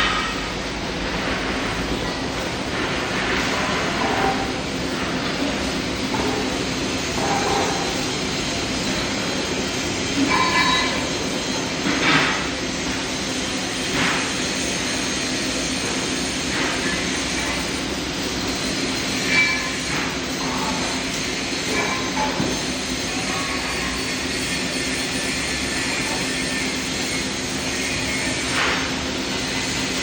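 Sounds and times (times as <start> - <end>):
welding arc buzzing hiss: 0.0 - 30.0.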